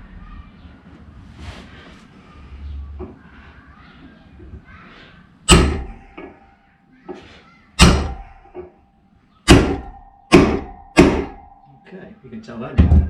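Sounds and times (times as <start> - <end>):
hammer striking metal: 5.5 - 6.5, 7.8 - 8.7, 9.5 - 12.0.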